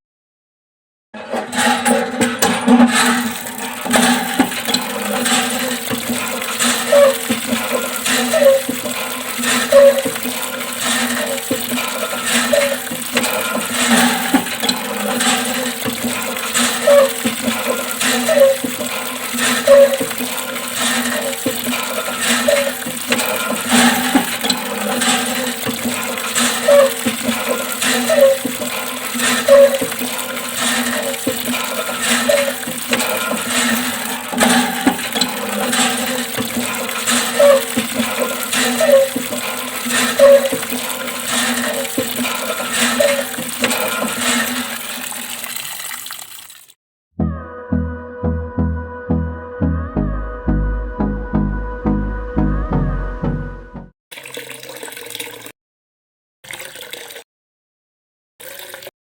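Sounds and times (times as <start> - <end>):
water pump motor humming: 1.4 - 45.9
water splashing: 2.8 - 46.8.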